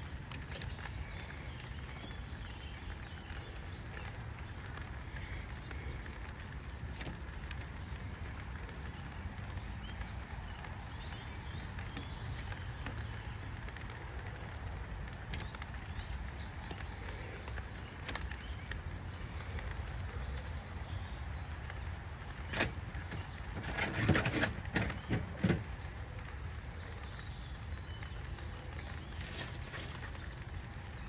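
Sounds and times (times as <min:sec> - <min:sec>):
knocks and rattles of handling: 0:21.6 - 0:26.6, 0:28.0 - 0:30.9.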